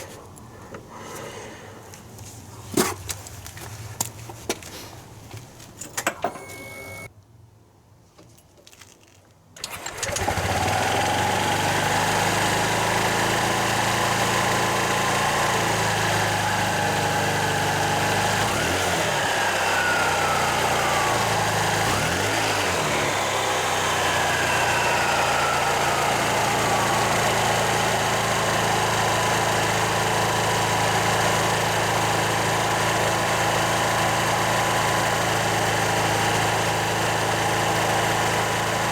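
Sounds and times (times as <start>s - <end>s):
scooter engine starting and idling: 6.0s - 7.1s, 9.6s - 38.9s.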